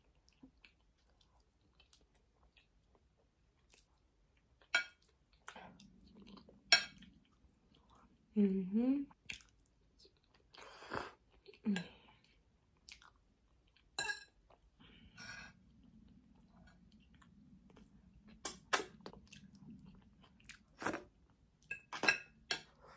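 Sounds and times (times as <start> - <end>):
faint low hum: 0.0 - 22.9
mouth chewing wet smacks: 9.2 - 10.6, 12.8 - 13.2.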